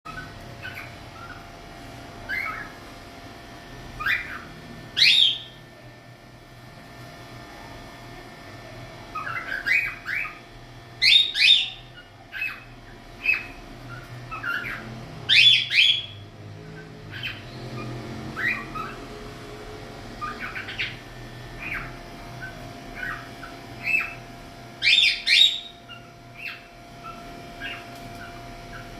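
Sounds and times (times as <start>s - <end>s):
cockatiel chirping and squawking: 0.1s - 1.6s, 2.2s - 2.8s, 4.0s - 5.6s, 9.1s - 19.2s, 20.2s - 28.9s.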